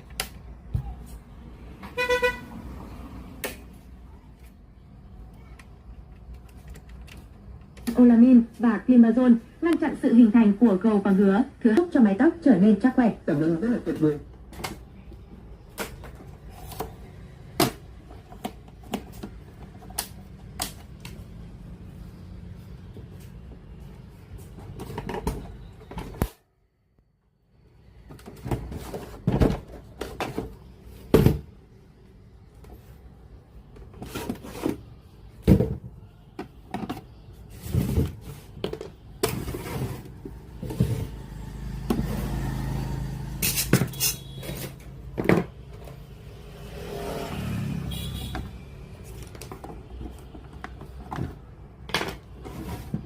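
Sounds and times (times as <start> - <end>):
tools clicking and scraping: 43.4 - 44.9.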